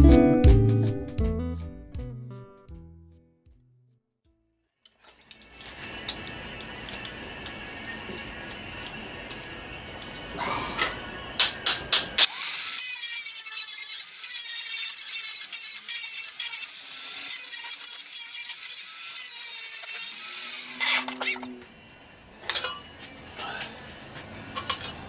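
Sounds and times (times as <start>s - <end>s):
power tool grinding metal: 12.2s - 21.6s.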